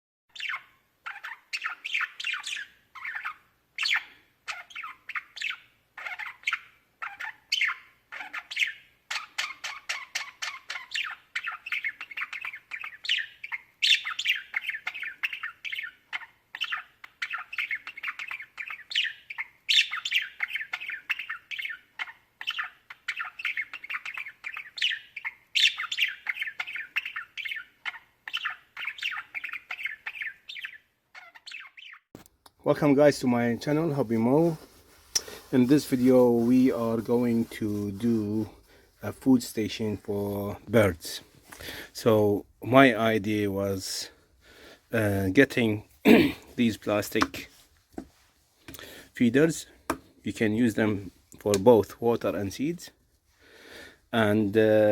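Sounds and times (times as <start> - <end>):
budgerigars chirping: 0.3 - 32.1.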